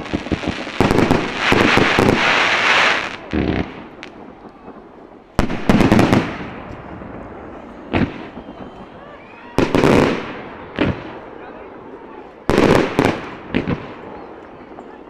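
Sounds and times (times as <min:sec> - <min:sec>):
sharp firework crack: 0:00.0 - 0:11.2
fireworks bursting: 0:00.0 - 0:15.0.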